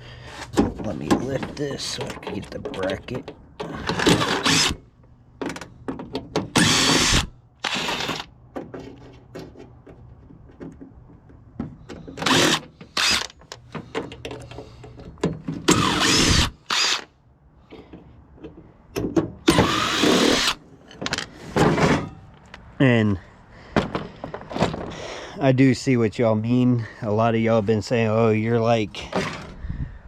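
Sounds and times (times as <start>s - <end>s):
power drill running: 4.0s - 4.8s, 6.6s - 8.3s, 12.2s - 13.3s, 15.7s - 17.1s, 19.5s - 20.6s.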